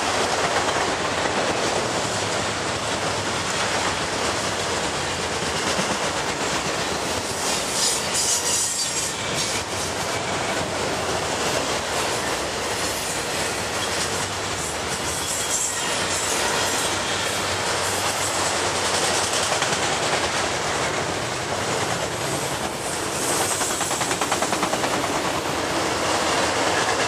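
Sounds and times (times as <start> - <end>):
train wheels rumbling on rails: 0.0 - 27.0
high metallic wheel squeal: 7.7 - 9.6, 15.1 - 17.4.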